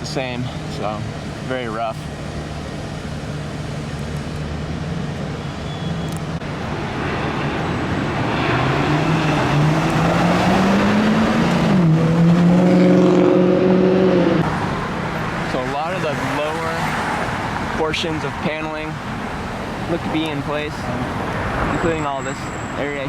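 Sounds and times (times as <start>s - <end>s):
traffic noise: 0.0s - 23.0s
vehicle engine accelerating: 4.2s - 14.6s.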